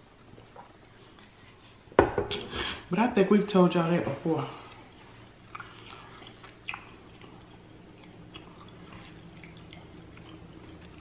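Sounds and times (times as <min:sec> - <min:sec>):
low steady hum: 0:00.0 - 0:11.0
chewing and mouth sounds: 0:04.6 - 0:11.0.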